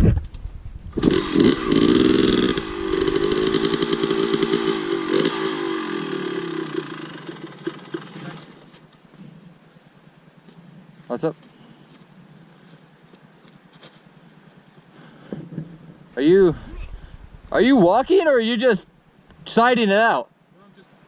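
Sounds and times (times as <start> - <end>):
dirt bike engine revving: 0.9 - 8.7.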